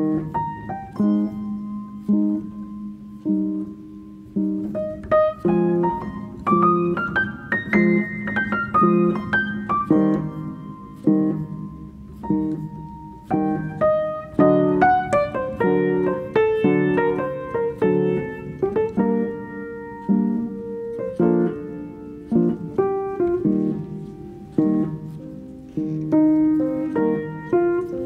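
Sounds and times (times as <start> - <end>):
gentle piano music: 0.0 - 28.0.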